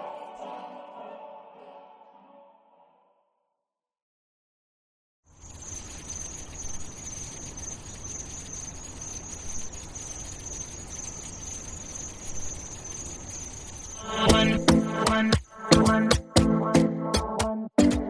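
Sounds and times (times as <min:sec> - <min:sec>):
music: 0:00.0 - 0:03.1, 0:14.0 - 0:18.0
crickets chirping: 0:05.3 - 0:16.0.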